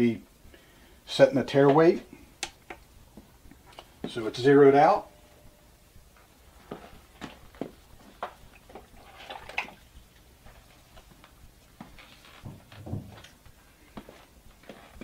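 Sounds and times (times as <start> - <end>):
dull thumps: 11.8 - 13.3.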